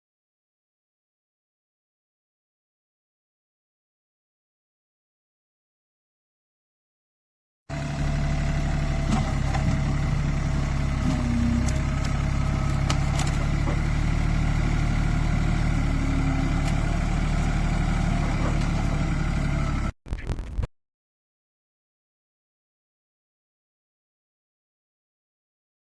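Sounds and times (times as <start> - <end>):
vehicle engine idling: 7.7 - 19.9.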